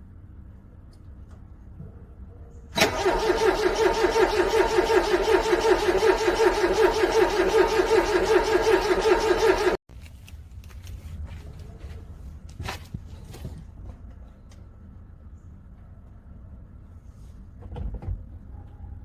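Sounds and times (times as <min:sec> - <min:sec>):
car starter cranking engine: 0:02.8 - 0:09.8.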